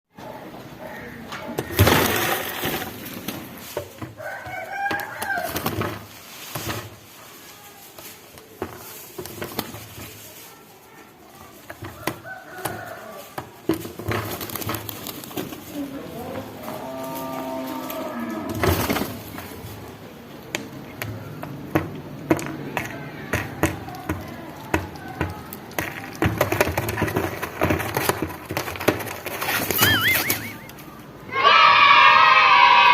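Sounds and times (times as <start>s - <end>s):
loud scuffling: 1.3s - 31.0s
rooster crowing: 4.2s - 5.6s, 12.0s - 13.3s.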